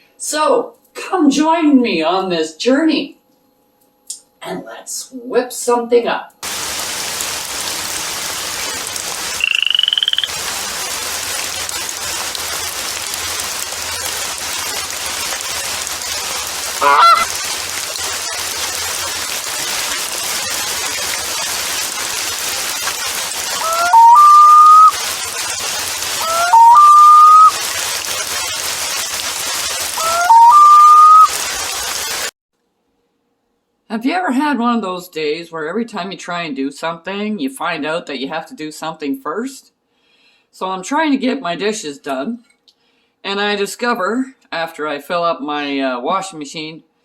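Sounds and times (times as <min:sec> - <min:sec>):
steady hiss: 0:06.4 - 0:32.3
loud honks rising in pitch: 0:16.8 - 0:17.2.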